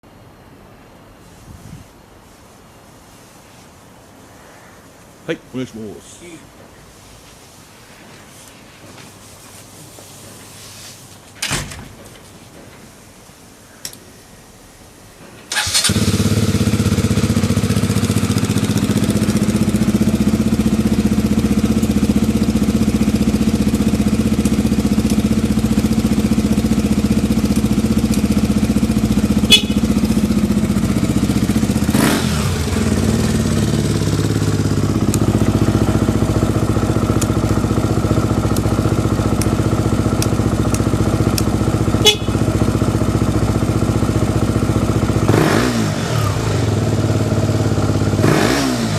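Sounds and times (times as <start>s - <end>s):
electric starter cranking: 15.5s - 16.4s
motorcycle engine idling: 15.6s - 48.6s.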